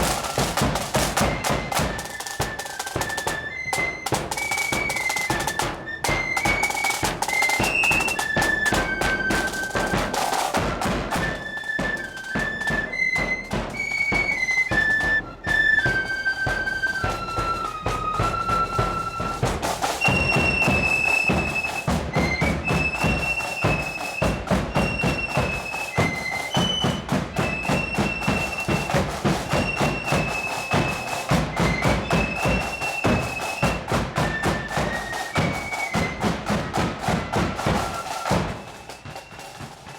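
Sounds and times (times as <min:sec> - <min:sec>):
bass and snare drum beats: 0:00.0 - 0:39.9
flutes playing melody: 0:00.0 - 0:39.9.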